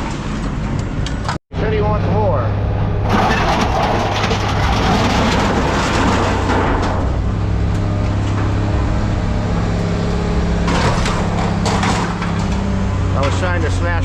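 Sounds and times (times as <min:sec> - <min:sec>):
diesel engine running: 0:01.6 - 0:14.0
scrap metal clanking and scraping: 0:03.0 - 0:14.0.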